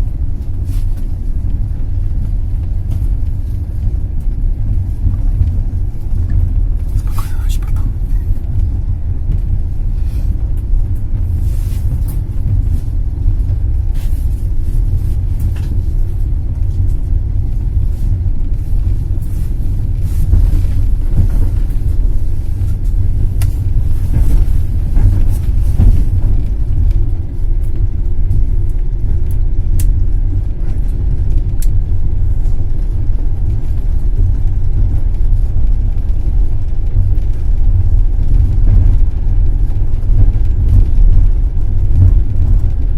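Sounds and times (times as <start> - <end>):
train rumbling along track: 0.0 - 42.9.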